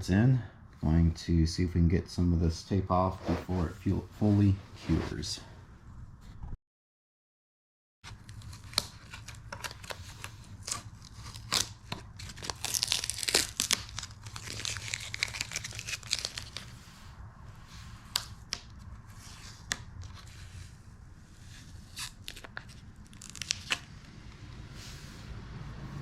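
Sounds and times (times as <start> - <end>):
tape peeling and crackling: 8.1 - 16.9, 17.6 - 20.6, 21.5 - 24.2.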